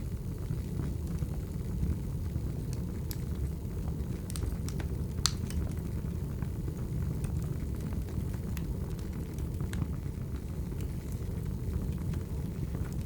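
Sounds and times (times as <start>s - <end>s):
fire crackles and pops: 0.0s - 13.0s
wood fire rumbling: 0.0s - 13.0s.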